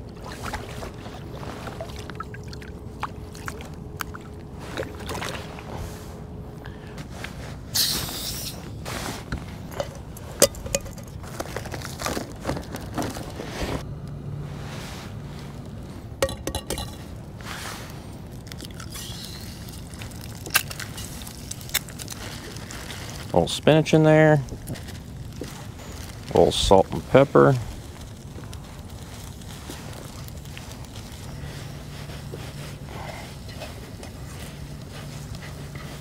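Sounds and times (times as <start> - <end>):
short hiss: 7.7 - 8.6.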